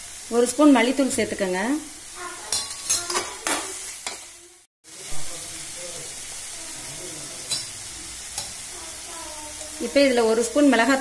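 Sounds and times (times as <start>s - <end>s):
food sizzling in a pan: 0.0s - 11.0s
metal spoon scraping a pan: 2.4s - 4.3s, 7.4s - 8.7s.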